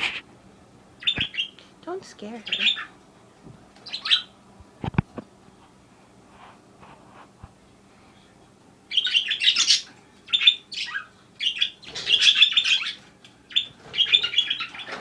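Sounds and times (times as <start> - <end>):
budgie chirping: 1.0 - 1.7, 2.4 - 3.0, 8.9 - 14.9.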